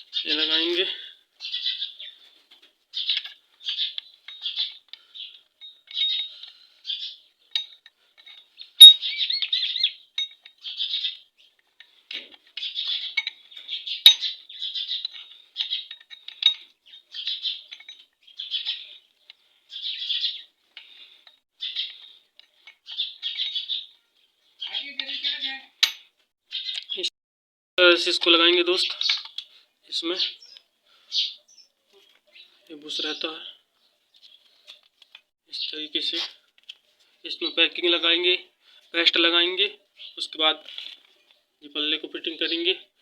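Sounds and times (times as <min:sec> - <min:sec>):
small bird chirping: 0:01.4 - 0:02.3, 0:02.9 - 0:07.7, 0:08.4 - 0:11.7, 0:12.5 - 0:25.7, 0:26.5 - 0:27.1, 0:30.2 - 0:35.9
sharp metal clinks: 0:07.6 - 0:09.6.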